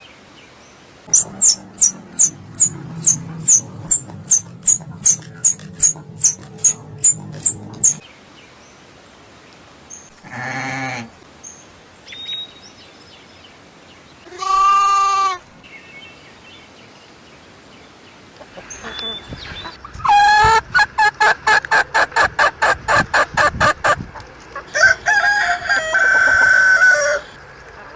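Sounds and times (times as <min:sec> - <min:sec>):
squirrel chattering: 0:01.1 - 0:08.0.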